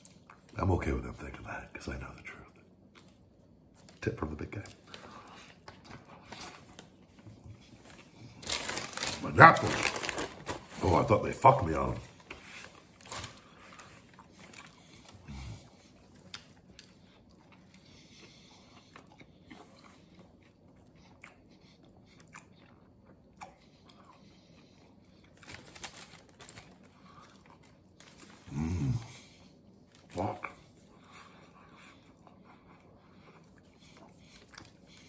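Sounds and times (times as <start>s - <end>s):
man chewing: 12.1s - 35.0s.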